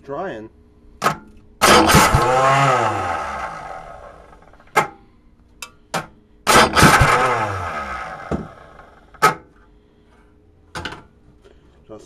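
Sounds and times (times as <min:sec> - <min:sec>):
small engine failing to start: 0:01.6 - 0:04.7, 0:06.5 - 0:09.2.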